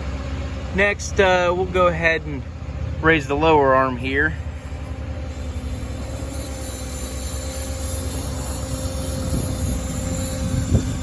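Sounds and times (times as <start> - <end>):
diesel engine drone: 0.0 - 11.0
hydraulic whine: 3.8 - 11.0
thin high hiss: 4.6 - 11.0.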